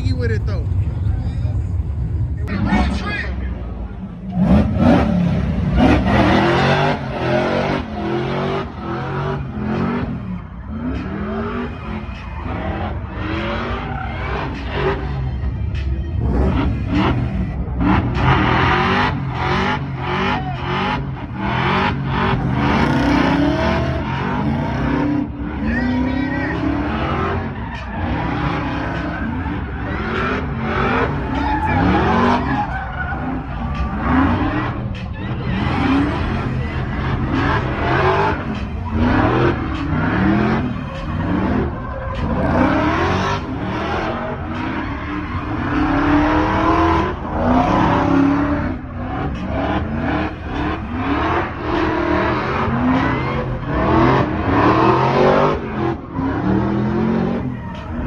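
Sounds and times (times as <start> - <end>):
car engines revving hard: 0.0 - 58.0
tyres squealing: 27.0 - 48.5.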